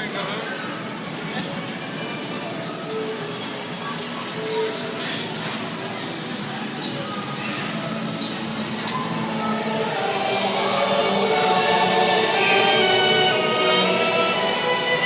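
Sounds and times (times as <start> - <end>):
background music with strings: 7.4 - 15.0.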